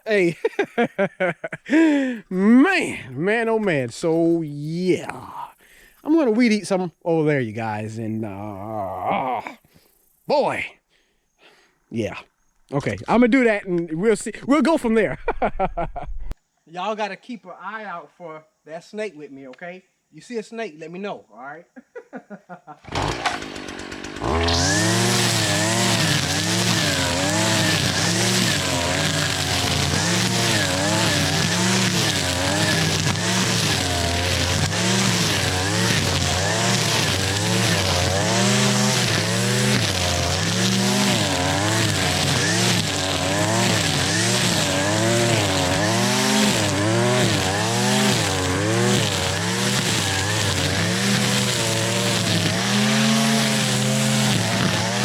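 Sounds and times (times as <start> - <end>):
string trimmer engine at high throttle: 22.8 - 55.0.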